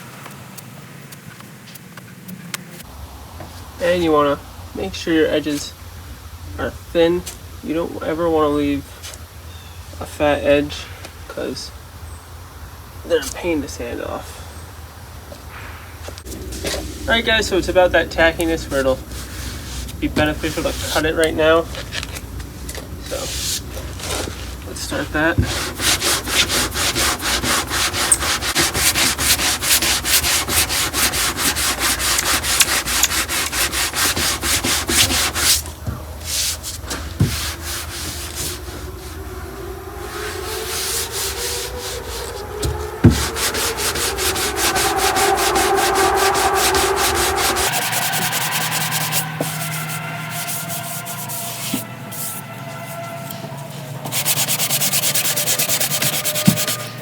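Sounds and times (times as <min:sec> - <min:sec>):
scraping body filler by hand: 0:18.4 - 0:22.2, 0:23.1 - 0:39.2, 0:54.0 - 0:57.0.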